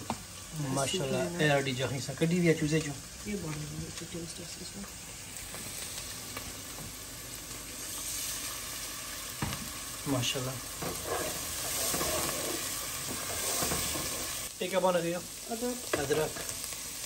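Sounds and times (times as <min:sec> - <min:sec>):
paste sizzling in hot oil: 0:00.0 - 0:17.0
wooden spoon scraping a pot: 0:10.8 - 0:14.4.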